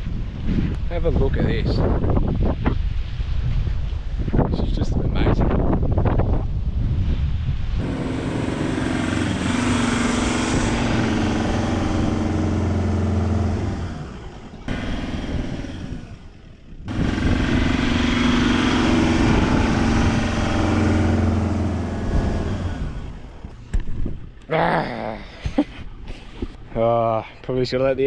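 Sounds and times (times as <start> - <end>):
vehicle engine driving on sand: 7.8 - 24.0.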